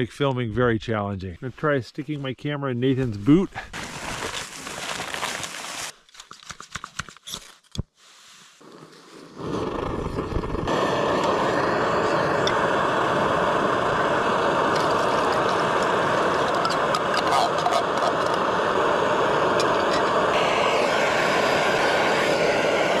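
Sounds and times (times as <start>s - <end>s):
camp stove burner roaring hiss: 8.0s - 23.0s.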